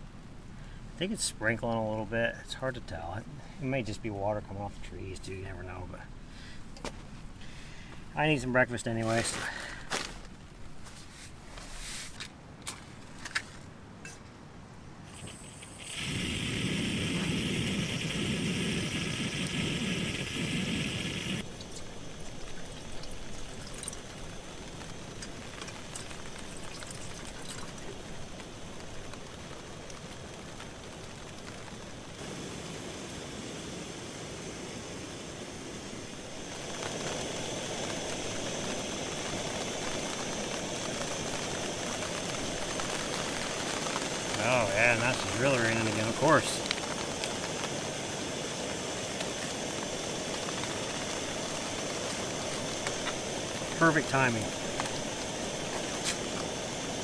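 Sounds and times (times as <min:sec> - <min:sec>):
rain falling on a tarp: 0:07.0 - 0:13.7, 0:15.1 - 0:34.4, 0:35.9 - 0:57.0
water pouring into a container: 0:15.1 - 0:25.0, 0:25.8 - 0:28.0.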